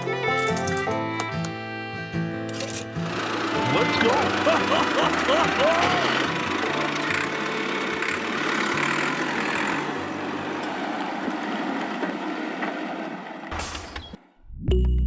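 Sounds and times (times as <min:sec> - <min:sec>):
engine running: 0:02.5 - 0:14.0.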